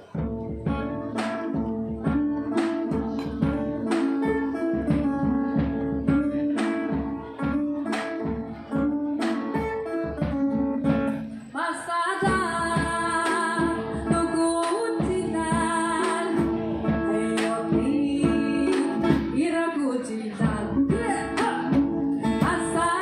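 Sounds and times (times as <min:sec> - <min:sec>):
acoustic guitar strumming: 0:00.0 - 0:19.5, 0:20.4 - 0:23.0.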